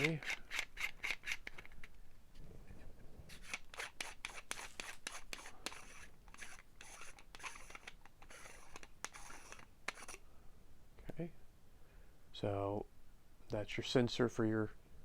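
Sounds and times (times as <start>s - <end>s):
faint rubs and scrapes: 0.0s - 10.2s.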